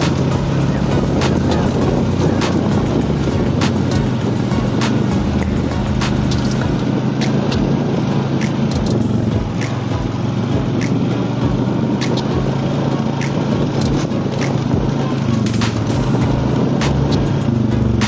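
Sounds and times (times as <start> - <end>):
engine humming: 0.0 - 18.0
sharp clicks or rattles: 8.4 - 10.0.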